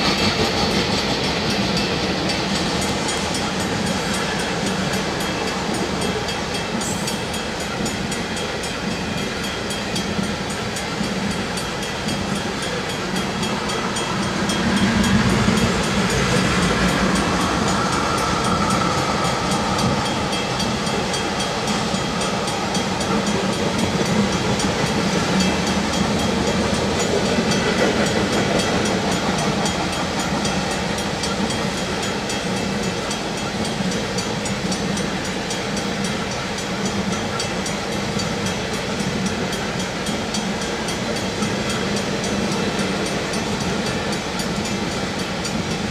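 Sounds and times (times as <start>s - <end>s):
freight train wheels rumbling: 0.0s - 45.9s.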